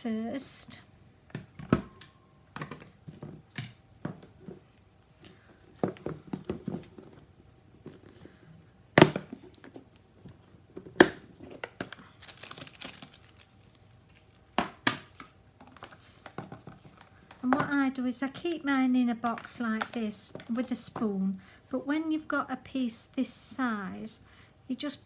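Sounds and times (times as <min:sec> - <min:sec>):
paper crinkling and rustling: 0:11.4 - 0:17.4.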